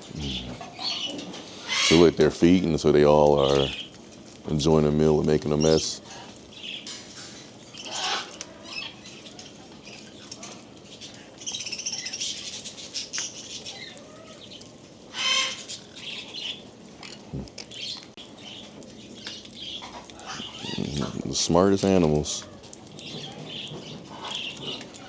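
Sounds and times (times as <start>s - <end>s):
parrots chirping and squawking: 0.0s - 25.0s.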